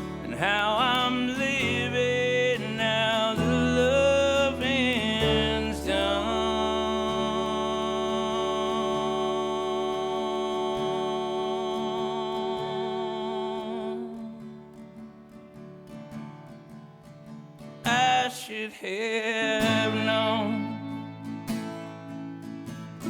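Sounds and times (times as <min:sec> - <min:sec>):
man singing long note: 0:00.0 - 0:14.2, 0:18.8 - 0:21.3
acoustic guitar: 0:00.0 - 0:23.0.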